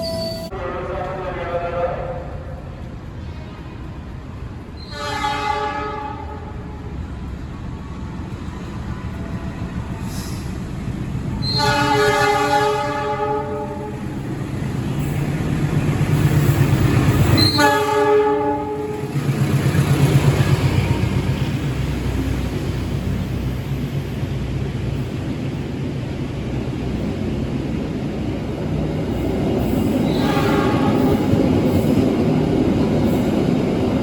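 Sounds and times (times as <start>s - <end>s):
train rumble: 0.0s - 34.0s
locomotive horn blasts: 4.8s - 6.8s, 11.4s - 13.9s, 17.4s - 19.0s, 30.1s - 31.2s.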